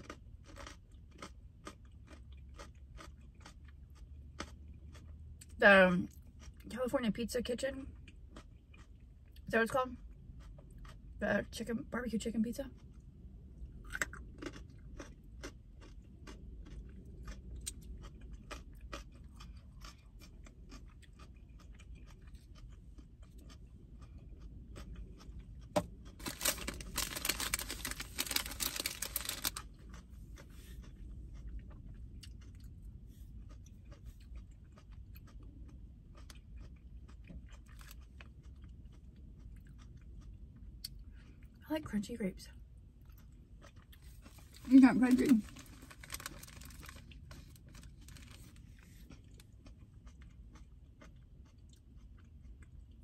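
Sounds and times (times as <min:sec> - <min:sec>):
chewing crunchy carrots: 0:00.0 - 0:41.6, 0:42.6 - 0:53.0
plastic bag crinkling: 0:26.2 - 0:29.7, 0:44.3 - 0:48.8.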